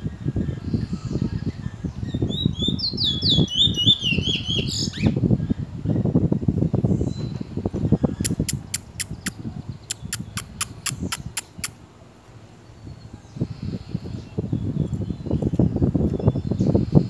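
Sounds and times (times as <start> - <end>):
bird sharp clicking calls: 8.2 - 11.8.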